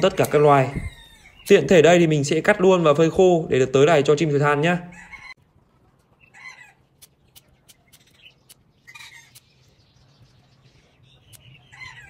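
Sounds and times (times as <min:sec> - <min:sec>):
faint bird calls: 0:06.2 - 0:09.9
sharp clicks: 0:07.0 - 0:09.6.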